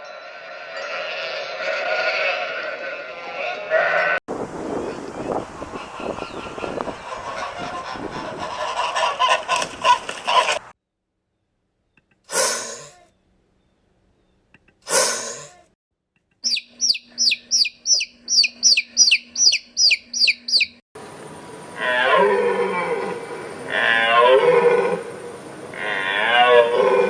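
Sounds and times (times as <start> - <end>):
harsh bird calls: 4.5 - 10.6, 16.4 - 20.8
flock of birds calling: 4.7 - 10.6, 16.5 - 20.8
falling whistled bird notes: 16.5 - 20.8.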